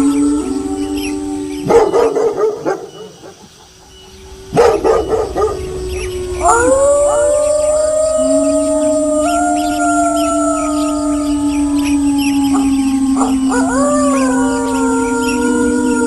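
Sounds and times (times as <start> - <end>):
wolves howling: 0.0 - 16.0
dog barking: 1.7 - 3.4, 4.5 - 5.6.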